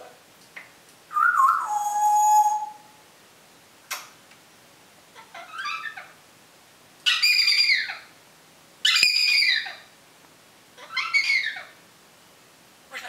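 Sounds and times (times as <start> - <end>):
parrot calling loudly: 1.1 - 3.0, 5.1 - 6.2, 7.0 - 8.1, 8.8 - 9.9, 10.8 - 11.8.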